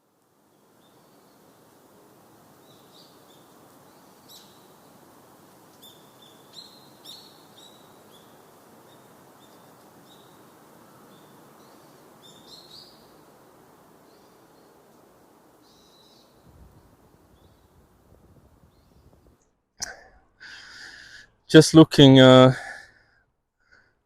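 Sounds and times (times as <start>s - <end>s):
faint outdoor background hiss: 0.0s - 24.0s
small birds chirping: 0.4s - 1.8s, 2.5s - 19.5s.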